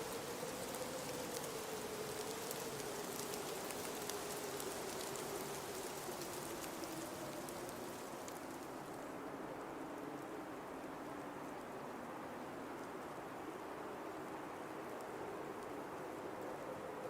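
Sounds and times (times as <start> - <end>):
hiss of blowing snow: 0.0 - 9.0
faint ticks: 0.0 - 9.1.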